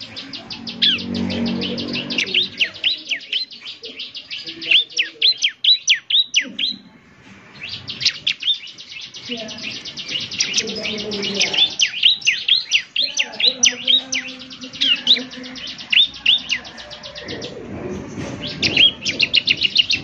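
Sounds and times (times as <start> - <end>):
low drone: 0.0 - 3.2
bird chirping and ticking: 0.0 - 6.9, 7.6 - 20.0.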